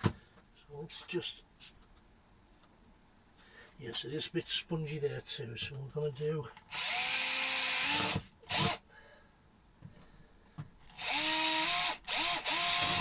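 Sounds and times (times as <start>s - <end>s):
power drill boring into wood: 6.7s - 8.8s, 10.9s - 13.0s.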